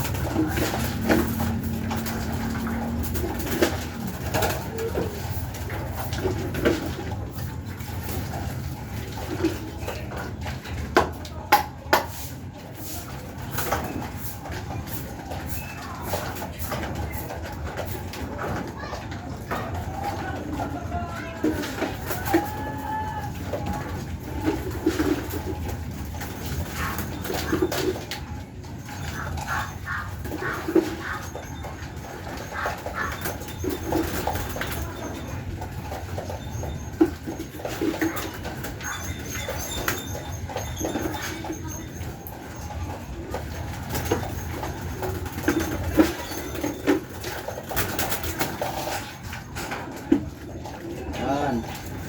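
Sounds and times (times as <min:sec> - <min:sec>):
pigeons cooing: 0:13.2 - 0:52.0.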